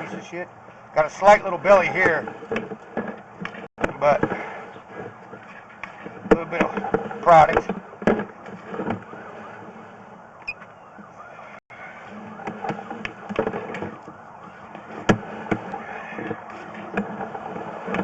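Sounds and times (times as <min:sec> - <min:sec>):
sharp clicks and knocks: 0:02.0 - 0:09.2
distant siren wailing: 0:08.9 - 0:18.0.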